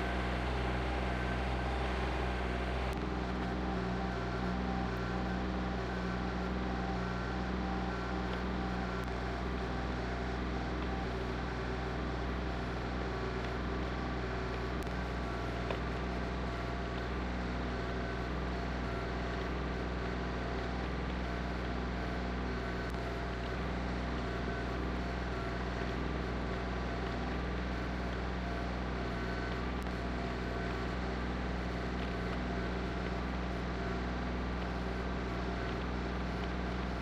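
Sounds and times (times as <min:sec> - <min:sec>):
tractor engine running: 0:00.0 - 0:03.0.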